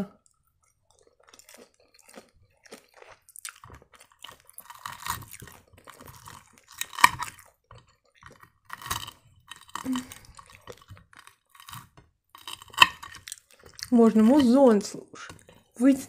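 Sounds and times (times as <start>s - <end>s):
chewing crackly pastry: 0.1s - 16.0s
fork cutting crust on plate: 4.3s - 15.7s.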